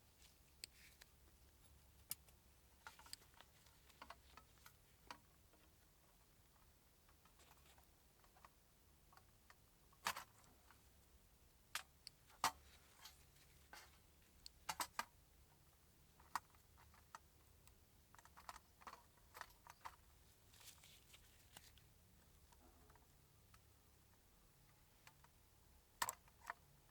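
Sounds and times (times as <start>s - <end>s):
clicks of small parts handled: 0.2s - 5.2s.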